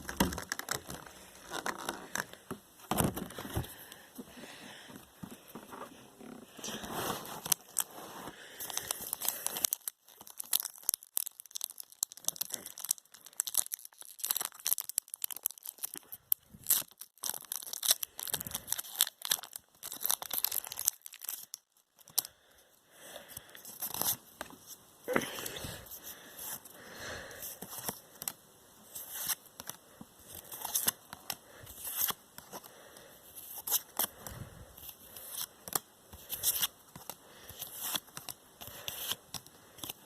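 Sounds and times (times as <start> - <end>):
packaging ripping and crinkling: 0.0 - 3.8, 6.6 - 8.0, 8.6 - 22.3.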